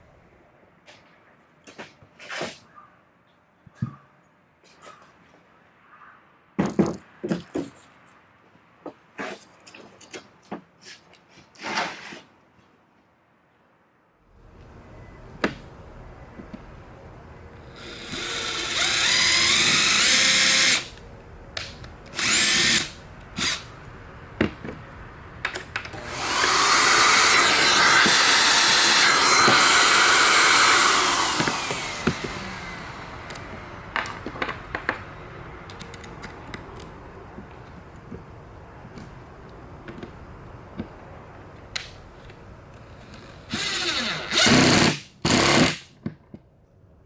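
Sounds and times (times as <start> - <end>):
power drill running: 17.7 - 21.0, 22.1 - 23.7, 26.0 - 33.5, 43.5 - 45.8.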